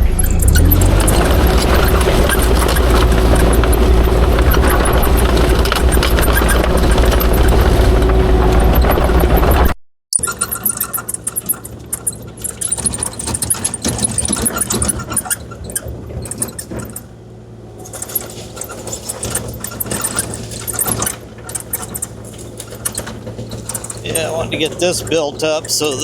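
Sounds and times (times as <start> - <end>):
bucket dragging gravel: 0.0 - 9.7, 17.8 - 26.0
excavator diesel engine running: 0.0 - 26.0.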